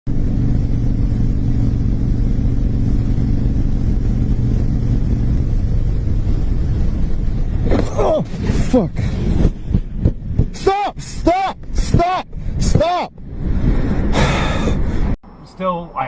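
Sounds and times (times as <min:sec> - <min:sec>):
car engine and road rumble: 0:00.1 - 0:16.0.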